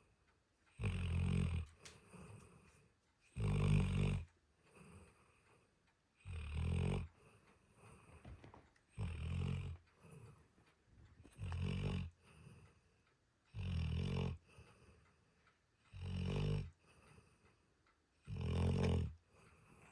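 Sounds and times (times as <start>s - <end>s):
faint dog breathing: 0.0s - 19.9s
dog snoring: 0.7s - 5.6s, 6.2s - 10.4s, 11.2s - 12.9s, 13.5s - 15.0s, 15.8s - 17.4s, 18.2s - 19.9s.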